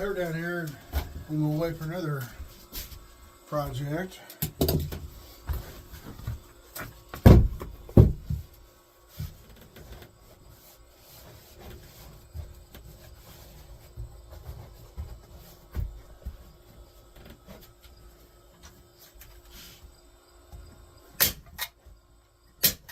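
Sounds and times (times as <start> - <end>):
faint steady hum: 0.0 - 22.9
wood being set down and handled: 4.5 - 10.2
heavy thumps: 7.1 - 8.5.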